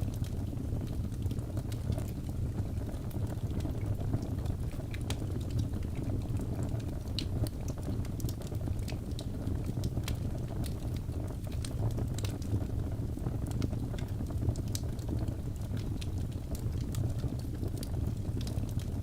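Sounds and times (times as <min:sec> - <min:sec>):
fire crackles and pops: 0:00.0 - 0:19.0
low rumble of flames: 0:00.0 - 0:19.0.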